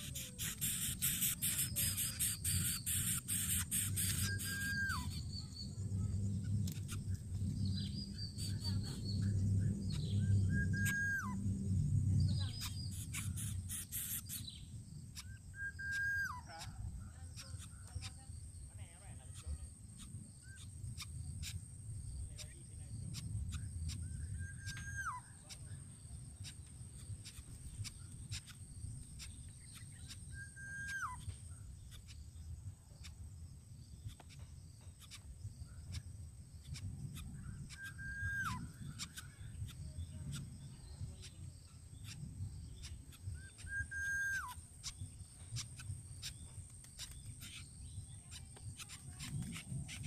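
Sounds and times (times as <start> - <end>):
bird calling with whistle: 0.0 - 5.6, 9.9 - 11.4, 15.2 - 16.8, 24.2 - 25.6, 29.8 - 31.3, 37.2 - 39.3, 42.8 - 45.0
low rumble: 4.3 - 13.7.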